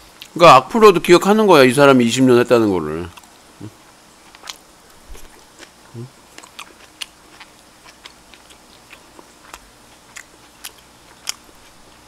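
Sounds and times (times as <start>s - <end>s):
person chewing: 0.1s - 0.4s, 3.1s - 12.0s.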